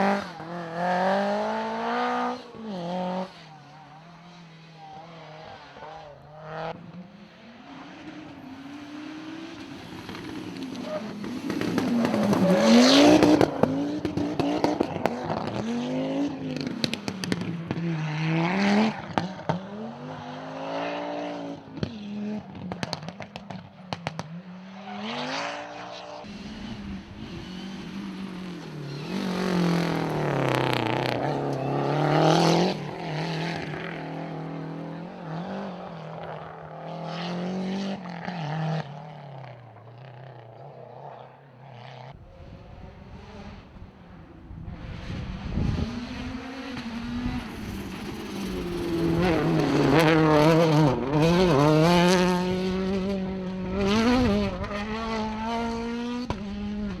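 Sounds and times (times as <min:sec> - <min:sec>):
rally car engine revving: 0:00.0 - 0:57.0
sharp engine crackles: 0:26.3 - 0:36.2, 0:45.9 - 0:51.9.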